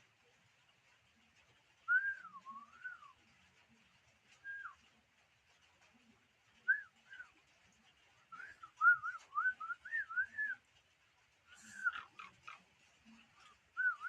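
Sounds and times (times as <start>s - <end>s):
bird singing whistled notes: 1.8s - 3.2s, 4.4s - 4.8s, 6.6s - 7.3s, 8.3s - 10.6s, 11.5s - 12.3s, 13.7s - 14.0s.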